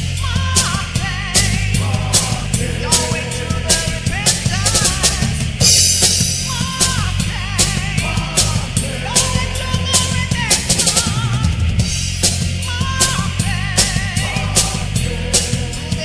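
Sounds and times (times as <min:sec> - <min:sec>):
heavy metal band playing: 0:00.0 - 0:16.0
cymbal crash: 0:05.6 - 0:07.1.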